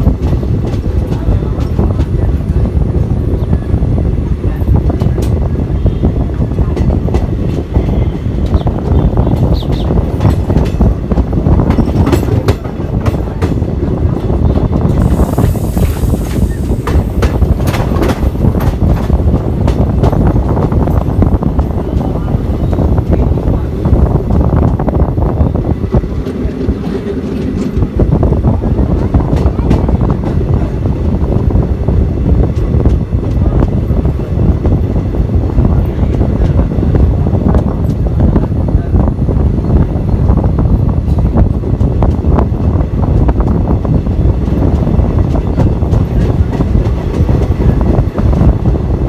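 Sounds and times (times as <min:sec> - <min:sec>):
train wheels rumbling on track: 0:00.0 - 0:49.0
wind buffeting microphone: 0:00.0 - 0:49.0
rushing hiss: 0:15.0 - 0:18.5.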